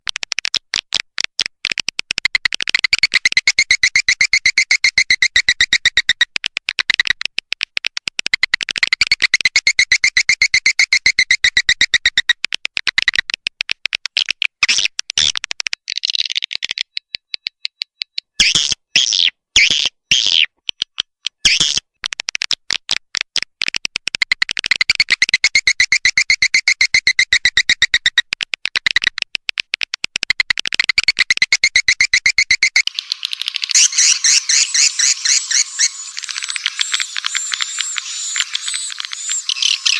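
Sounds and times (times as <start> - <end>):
swiftlet twittering recording: 31.0 - 39.9.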